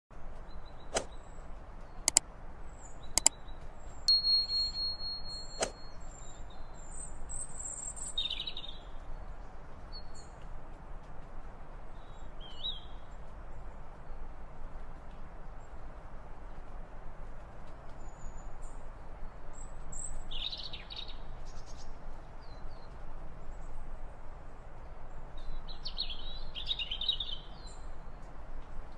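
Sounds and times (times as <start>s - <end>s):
birds chirping: 0.4s - 8.8s
sharp clicks: 3.2s - 3.4s.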